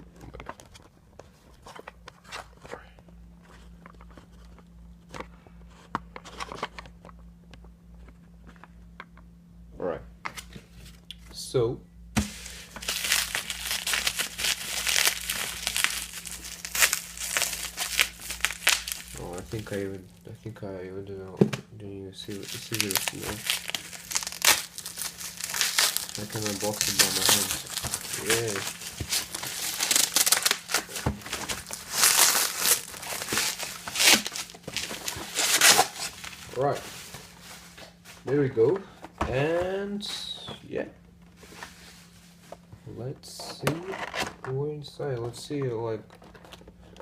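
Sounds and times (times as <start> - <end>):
packaging being torn open: 12.7 - 19.9, 22.3 - 36.4.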